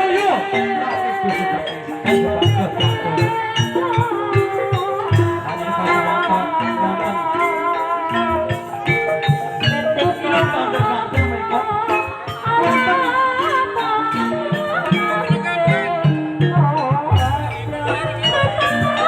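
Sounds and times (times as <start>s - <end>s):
ringing metallophone notes: 0.0s - 19.0s
wavering melodic line: 0.0s - 19.0s
drum strokes: 17.0s - 19.0s.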